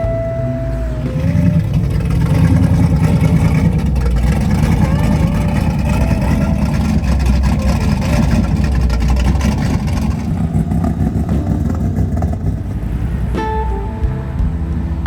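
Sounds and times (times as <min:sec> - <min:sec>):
car engine deep rumble: 0:00.0 - 0:15.0.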